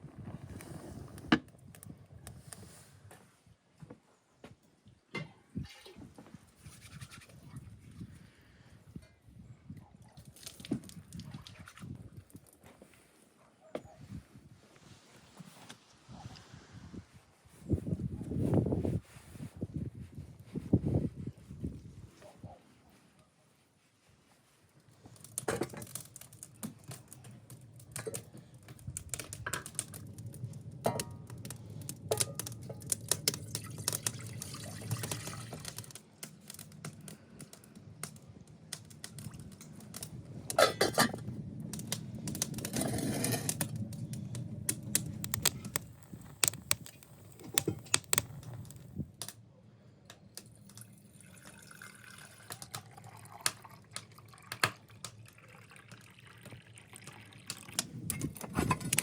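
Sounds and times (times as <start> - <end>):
liquid splashing and trickling: 10.2 - 12.5, 27.8 - 36.0, 50.6 - 58.0
clicks and knocks: 44.7 - 48.8.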